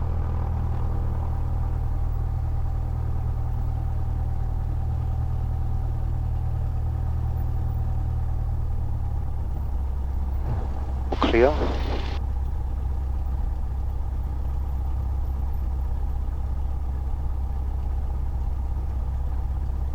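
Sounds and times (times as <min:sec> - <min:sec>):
piston aircraft engine droning: 0:10.2 - 0:12.2.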